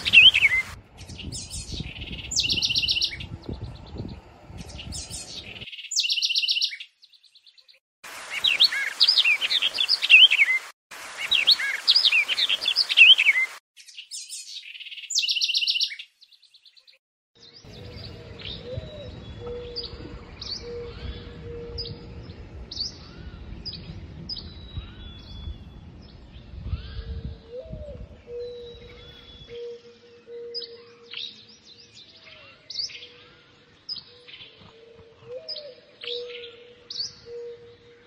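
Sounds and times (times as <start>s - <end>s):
low wind rumble: 0.0s - 5.6s, 17.7s - 29.6s
birds chirping: 0.0s - 38.0s.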